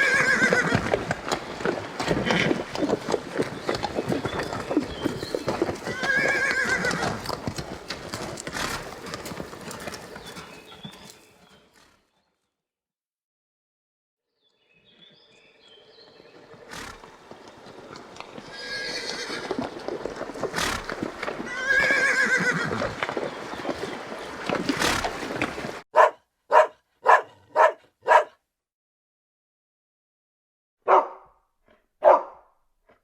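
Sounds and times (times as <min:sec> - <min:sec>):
horse whinnying: 0:00.0 - 0:03.2, 0:04.0 - 0:09.5, 0:16.7 - 0:17.2, 0:18.4 - 0:19.8, 0:20.4 - 0:23.2
dog barking: 0:25.9 - 0:28.4, 0:30.8 - 0:32.5.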